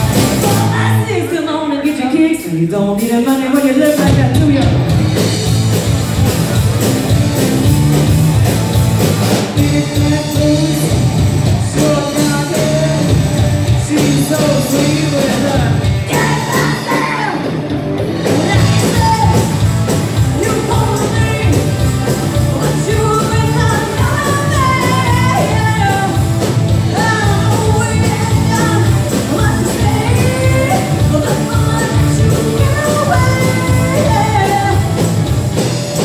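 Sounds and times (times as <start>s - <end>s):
live rock band playing: 0.0s - 36.0s
singer's wordless vocals: 0.3s - 4.8s, 9.5s - 17.6s, 20.3s - 35.0s.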